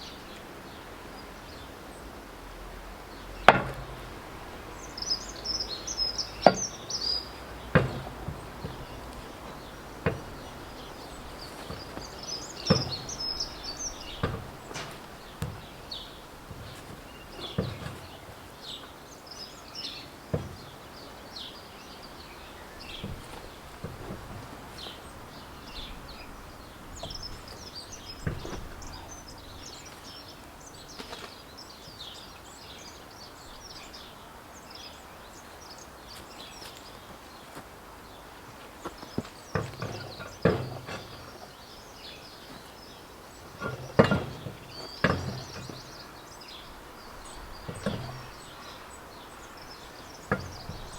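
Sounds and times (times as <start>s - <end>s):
small birds chirping: 0.0s - 50.9s
knocks and clunks on tractor: 3.2s - 31.4s, 38.8s - 50.9s.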